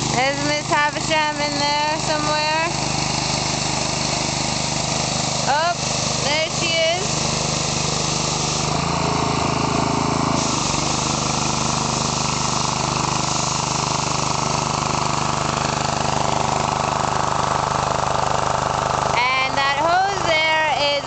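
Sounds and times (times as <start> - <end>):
pressure washer engine hum: 0.0 - 21.0
water spray hissing: 0.8 - 15.7.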